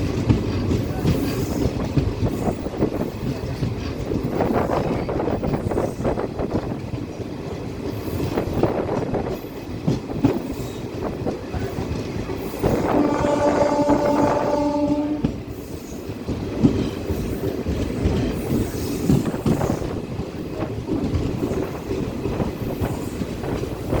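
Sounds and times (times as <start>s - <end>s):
train rumbling on rails: 0.0s - 24.0s
train horn: 12.7s - 15.4s.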